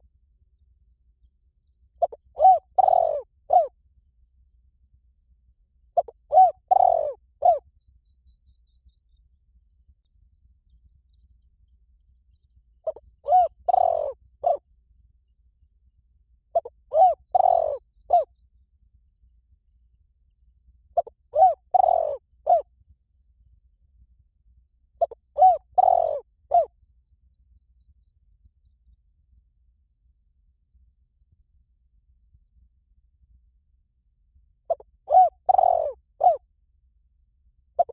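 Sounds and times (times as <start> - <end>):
dove cooing: 2.0 - 3.7, 6.0 - 7.6, 12.9 - 14.6, 16.6 - 18.3, 21.0 - 22.6, 25.0 - 26.7, 34.7 - 36.4.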